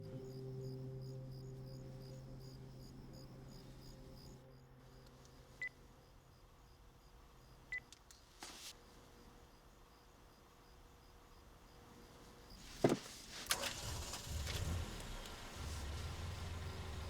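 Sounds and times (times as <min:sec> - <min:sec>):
low steady drone: 0:00.0 - 0:06.5.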